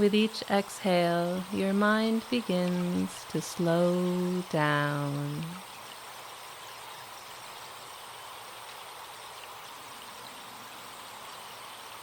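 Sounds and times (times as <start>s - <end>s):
stream flowing: 0.0s - 12.0s.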